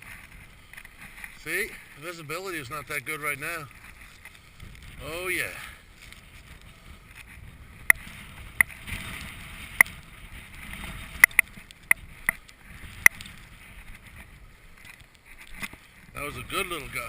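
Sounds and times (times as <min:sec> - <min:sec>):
wind on microphone: 0:03.4 - 0:17.0
sharp ticks: 0:07.8 - 0:08.0, 0:11.1 - 0:13.4.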